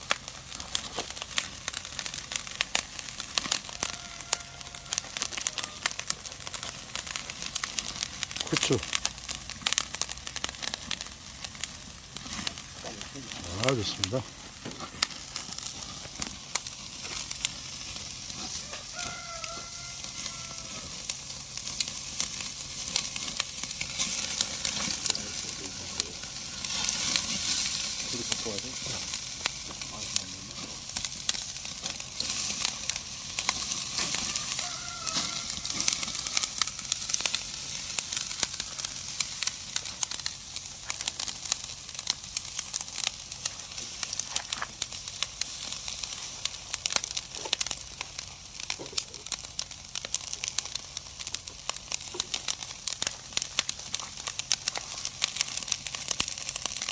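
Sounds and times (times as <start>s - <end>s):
meat sizzling on a grill: 0.0s - 56.9s.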